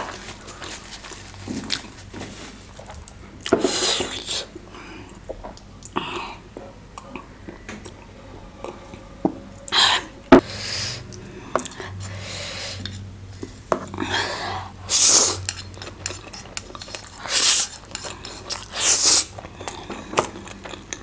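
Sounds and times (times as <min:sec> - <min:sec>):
chewing noises: 0:14.9 - 0:21.0.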